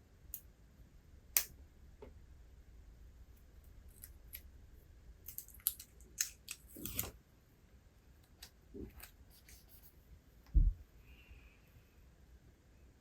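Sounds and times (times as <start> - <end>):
page turning rustle: 6.6 - 7.2.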